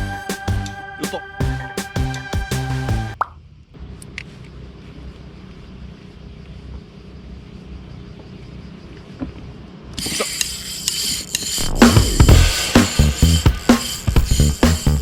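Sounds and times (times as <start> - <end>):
music: 0.0 - 3.2, 11.8 - 15.0.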